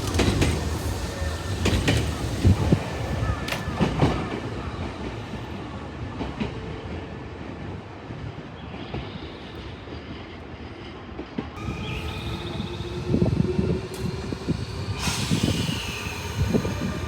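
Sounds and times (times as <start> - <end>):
train wheels clacking on rail joints: 0.0 - 4.5
train rumble: 0.0 - 7.8, 10.0 - 17.0.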